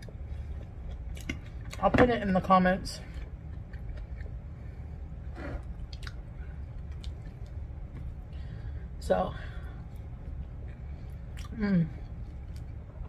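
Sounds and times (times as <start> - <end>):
chewing and wet mouth sounds: 0.0 - 1.9, 3.0 - 8.3, 9.8 - 13.0.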